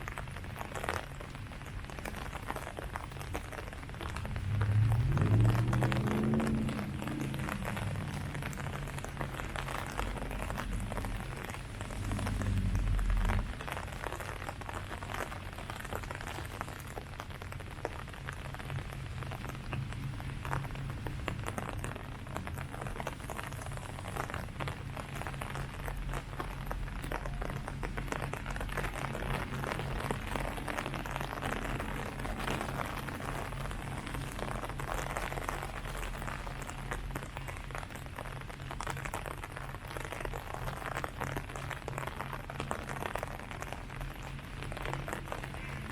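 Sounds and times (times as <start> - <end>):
rain falling on leaves: 0.0 - 45.9
low rumble: 3.6 - 45.9.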